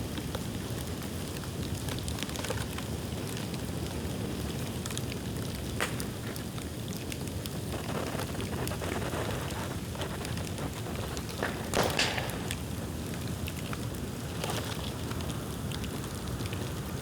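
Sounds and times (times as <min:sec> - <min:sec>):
bamboo bonfire crackling: 0:00.0 - 0:17.0
loud sharp pop: 0:11.2 - 0:12.9.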